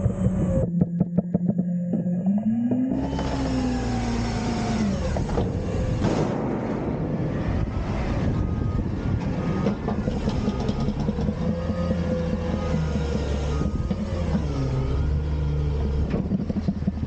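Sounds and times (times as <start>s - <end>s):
diesel truck engine under load: 0.0s - 17.0s
hydraulic whine: 0.0s - 17.0s
metal clanks and rattles: 5.1s - 12.5s.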